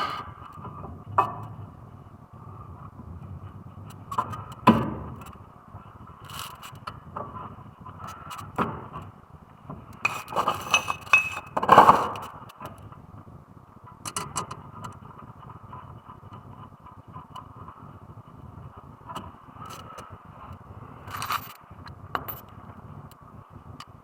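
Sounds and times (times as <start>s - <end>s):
metal tools clinking: 10.1s - 11.6s.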